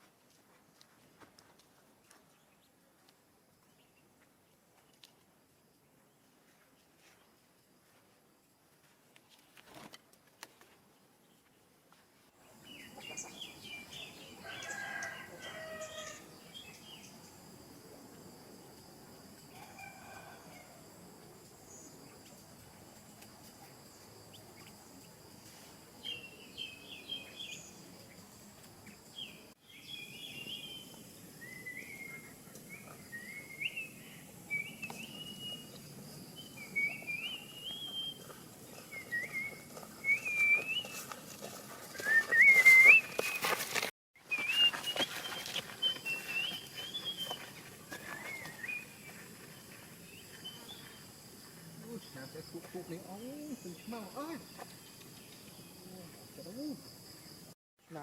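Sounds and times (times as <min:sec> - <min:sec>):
songbird chirping and warbling: 0:26.0 - 0:41.0, 0:44.3 - 0:51.0.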